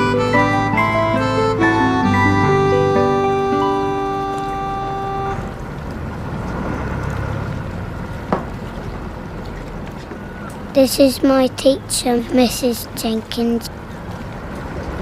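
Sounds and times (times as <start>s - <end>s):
harmonica-like music: 0.0s - 5.5s
motorboat engine rumble: 0.0s - 15.0s
water noise: 0.0s - 15.0s.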